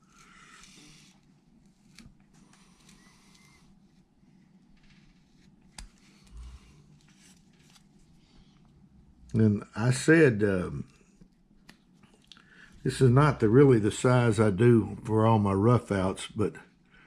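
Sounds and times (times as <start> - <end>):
faint wood carving sounds: 0.0 - 14.4.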